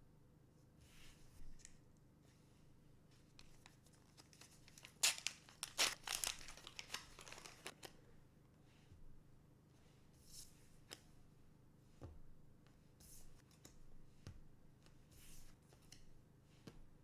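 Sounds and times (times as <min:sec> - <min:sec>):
wrapper crinkling and tearing: 0:04.1 - 0:08.0.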